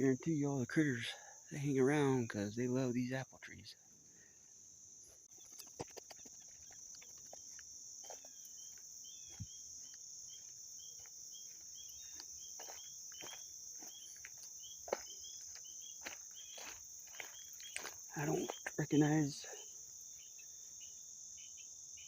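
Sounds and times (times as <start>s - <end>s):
crickets chirping: 0.0s - 22.0s
light footsteps: 5.3s - 18.8s
bird chirping calls: 8.4s - 21.7s.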